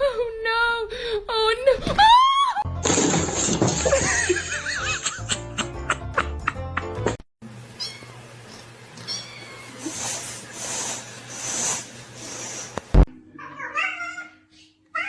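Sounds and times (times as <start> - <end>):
cat meowing: 9.0 - 9.8, 13.4 - 15.0
breathy bursts of noise: 9.7 - 13.0.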